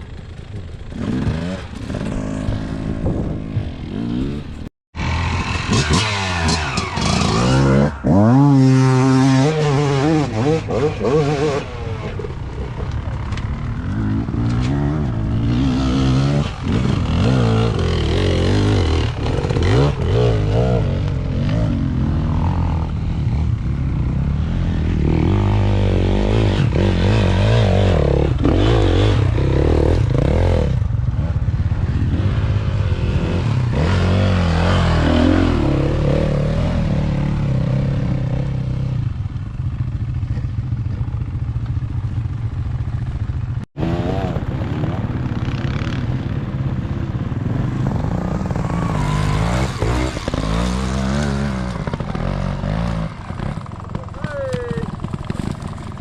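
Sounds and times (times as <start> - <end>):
motorbike engine revving hard: 1.0 - 12.3, 13.9 - 23.6, 43.8 - 56.0.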